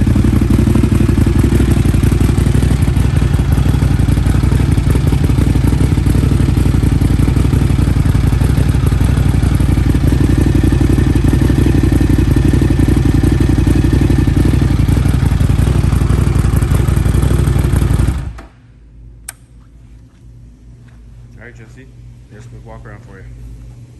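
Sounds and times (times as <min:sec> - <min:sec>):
motorcycle engine running: 0:00.0 - 0:18.5.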